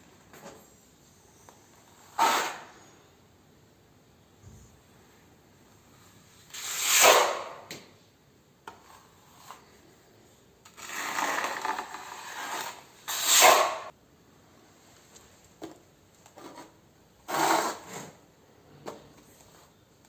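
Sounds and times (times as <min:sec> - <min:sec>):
scraping on hard surface: 0:08.7 - 0:09.9, 0:10.7 - 0:13.9, 0:16.3 - 0:19.8.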